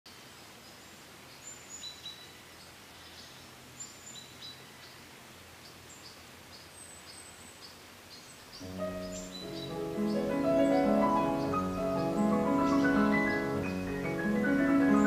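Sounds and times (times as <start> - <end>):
faint outdoor hiss: 0.1 - 15.0
birds chirping: 5.6 - 15.0.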